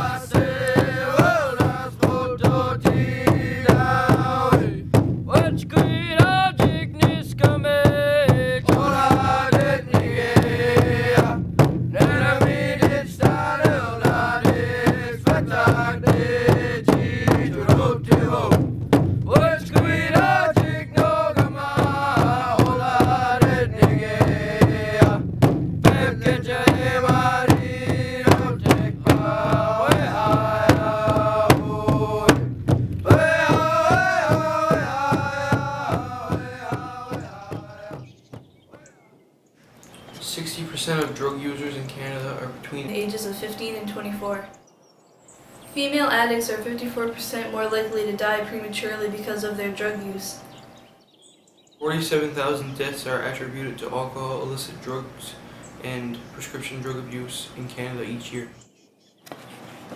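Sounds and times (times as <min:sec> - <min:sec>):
voices singing in unison: 0:00.0 - 0:38.3
steady drum beat: 0:00.0 - 0:38.7.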